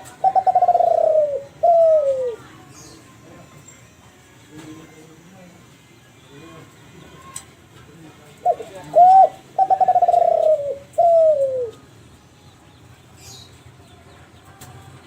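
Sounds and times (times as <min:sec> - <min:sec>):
dove cooing: 0:00.0 - 0:02.6, 0:08.4 - 0:11.8.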